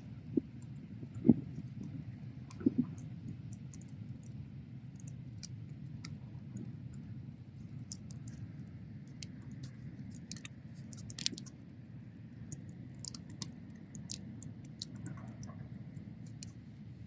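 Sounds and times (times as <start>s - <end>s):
low rumble of flames: 0.0s - 17.0s
bonfire pops and snaps: 9.1s - 11.5s.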